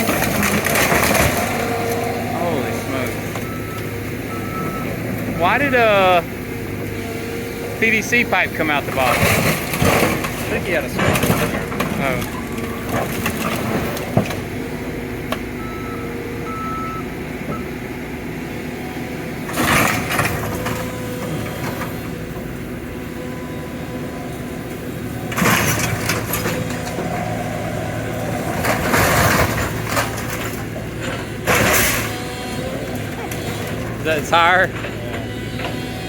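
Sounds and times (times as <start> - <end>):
diesel excavator engine running: 0.0 - 36.0
metal and glass crunching: 8.8 - 14.4, 25.3 - 27.0.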